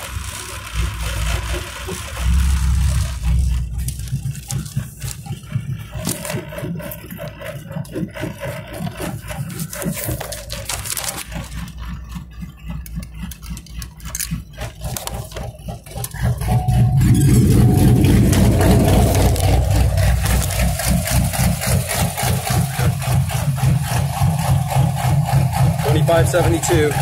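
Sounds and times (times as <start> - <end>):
car engine idling and revving: 0.0 - 27.0
pulsing exhaust note: 1.0 - 5.6, 16.1 - 27.0.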